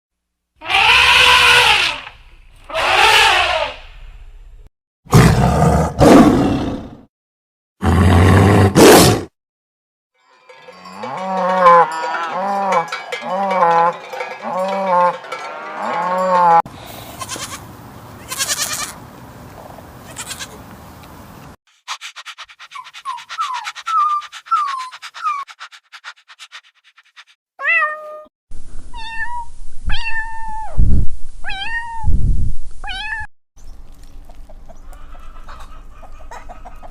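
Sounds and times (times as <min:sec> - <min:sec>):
farm animal calls: 0:00.6 - 0:03.8, 0:20.1 - 0:20.6, 0:21.9 - 0:27.3, 0:34.0 - 0:36.9.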